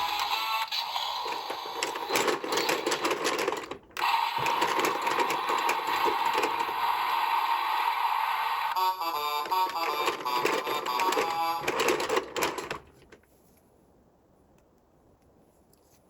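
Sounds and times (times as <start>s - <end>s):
plastic toy parts rattling: 0.0s - 7.2s, 9.0s - 13.2s.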